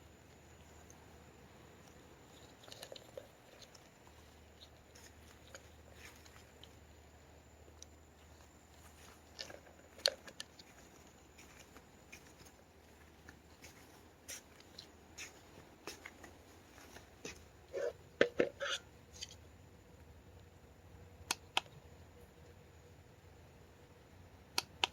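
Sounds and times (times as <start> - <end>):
small clicks and rustles: 1.8 - 7.1, 7.7 - 17.5.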